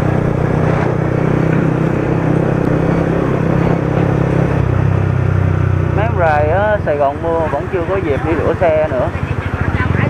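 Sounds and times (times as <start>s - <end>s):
motorcycle engine running: 0.0s - 10.0s
road noise: 0.0s - 10.0s.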